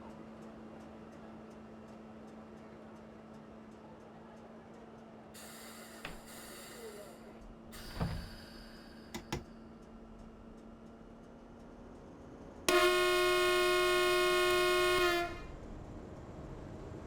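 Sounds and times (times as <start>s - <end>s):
hiss: 5.4s - 9.0s
train cab hum: 5.4s - 17.0s.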